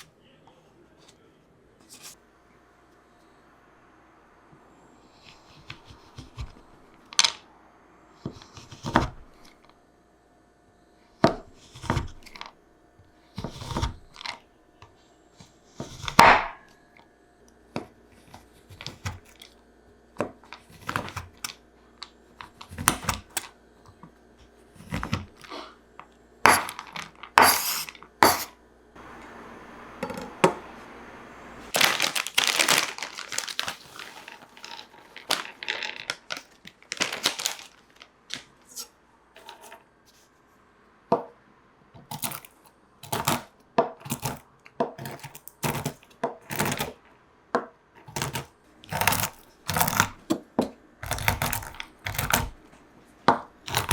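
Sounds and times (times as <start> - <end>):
crinkling and rustling: 31.7 - 40.4.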